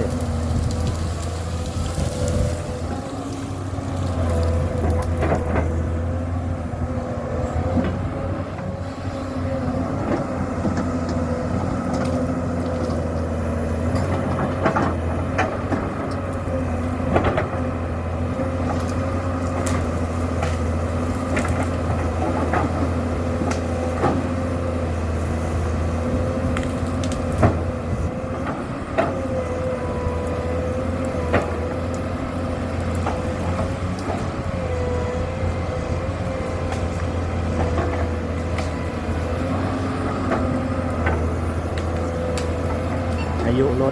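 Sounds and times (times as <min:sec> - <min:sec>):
diesel engine running under load: 0:00.0 - 0:43.9
hydraulic whine: 0:00.0 - 0:43.9
sharp knocks and cracks: 0:10.0 - 0:16.4, 0:18.5 - 0:24.4, 0:26.5 - 0:27.7, 0:40.1 - 0:43.2.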